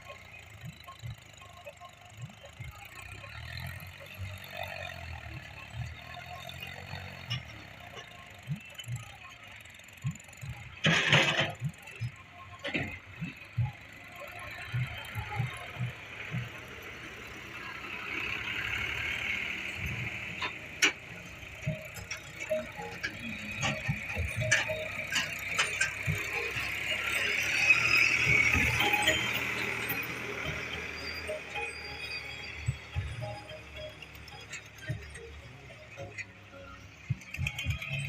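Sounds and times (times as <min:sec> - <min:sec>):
tractor diesel engine running: 0:00.0 - 0:38.0
knocks and clatter: 0:10.0 - 0:13.8, 0:19.8 - 0:31.4.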